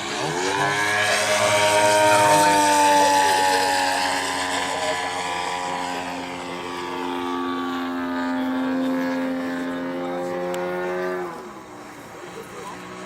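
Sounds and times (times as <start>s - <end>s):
model plane engine drone: 0.0s - 13.0s.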